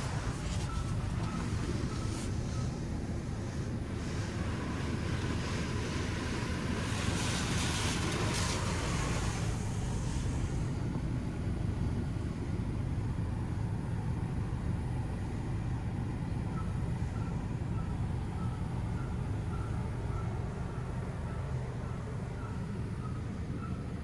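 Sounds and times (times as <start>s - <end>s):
low rumble of machinery: 0.0s - 24.0s
faint short beeps: 0.1s - 2.8s.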